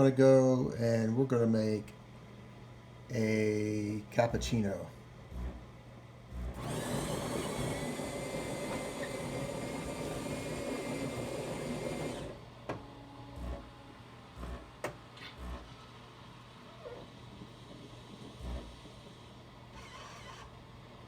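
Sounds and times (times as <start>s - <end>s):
coffee grinder motor whine: 6.3s - 12.5s, 13.4s - 13.7s.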